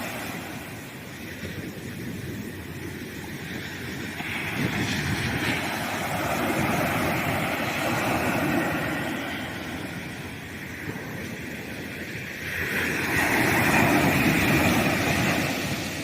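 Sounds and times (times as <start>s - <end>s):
ocean waves breaking on beach: 0.0s - 16.0s.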